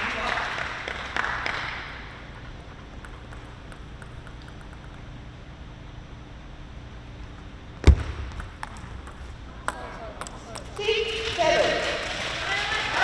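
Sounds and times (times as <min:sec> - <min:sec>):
sports hall ambience: 0:00.0 - 0:13.0
loud thud: 0:07.8 - 0:08.6.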